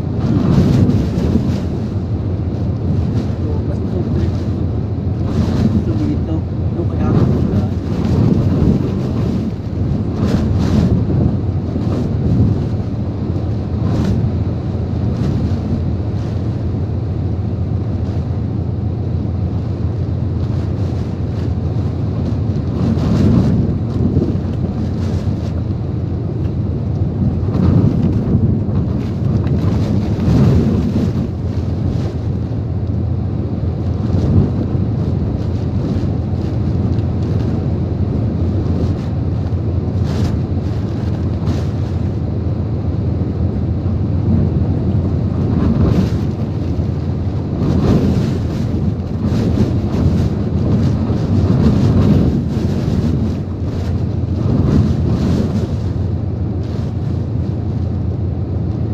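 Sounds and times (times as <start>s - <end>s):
strong wind gusts buffeting microphone: 0.0s - 58.9s.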